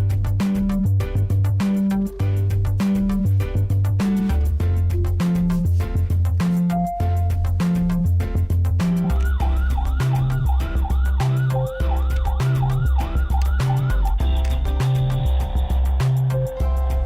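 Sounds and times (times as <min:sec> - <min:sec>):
upbeat music with bass and drums: 0:00.0 - 0:17.0
wailing siren: 0:09.0 - 0:16.3.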